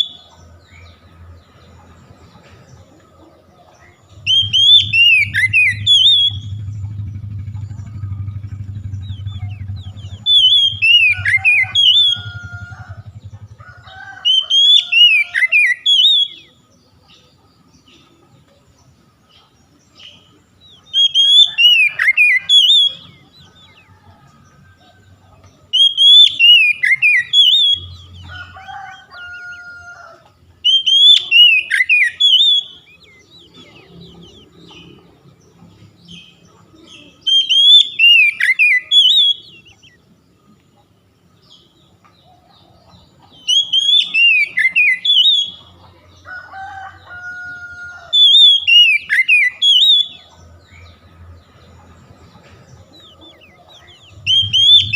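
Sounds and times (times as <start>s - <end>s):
bird whistling song: 0.0s - 0.4s, 4.1s - 7.1s, 7.8s - 13.5s, 14.2s - 16.6s, 20.0s - 23.8s, 25.7s - 28.3s, 30.6s - 35.0s, 36.1s - 40.0s, 43.3s - 45.8s, 48.0s - 50.4s, 53.0s - 54.9s
low hum: 4.2s - 13.8s, 54.1s - 54.9s.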